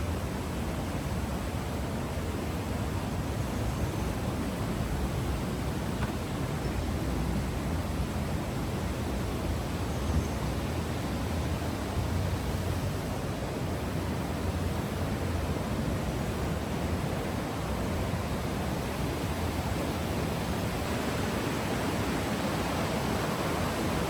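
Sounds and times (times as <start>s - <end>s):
fast stream rushing: 11.6s - 24.0s.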